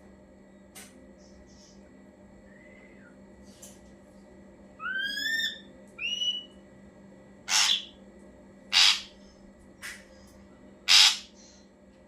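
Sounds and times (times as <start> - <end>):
bird harsh calls: 7.5 - 8.0, 8.7 - 9.2, 10.9 - 11.6.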